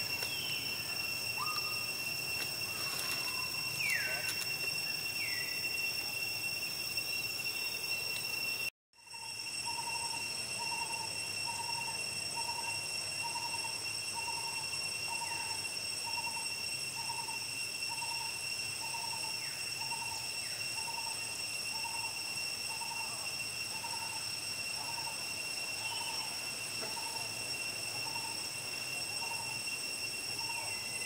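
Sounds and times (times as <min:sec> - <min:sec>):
falling chirps: 0:00.0 - 0:08.7
high-pitched whine: 0:00.0 - 0:31.0.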